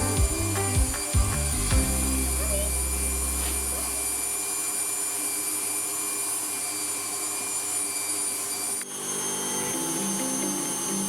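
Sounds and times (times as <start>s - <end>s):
background music: 0.0s - 4.0s
electric stand mixer running: 0.0s - 11.0s.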